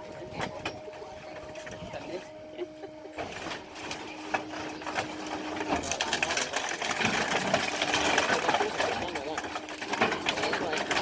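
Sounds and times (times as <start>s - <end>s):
heavy machinery clattering: 3.1s - 11.0s
metal crunching: 3.1s - 11.0s.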